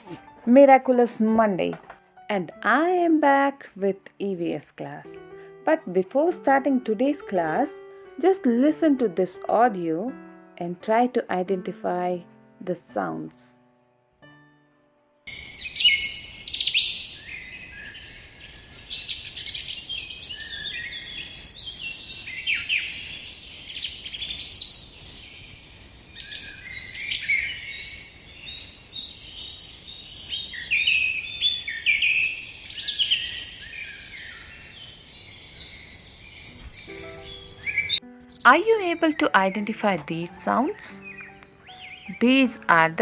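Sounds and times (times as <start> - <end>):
small birds chirping and trilling: 15.3 - 43.0.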